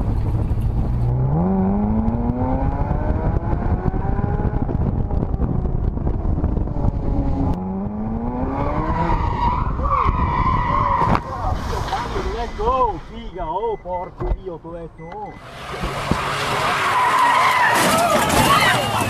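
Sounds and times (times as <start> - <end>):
car engine accelerating: 0.0 - 11.0, 15.3 - 17.7
road rumble: 0.0 - 19.0
tyres squealing: 16.5 - 19.0.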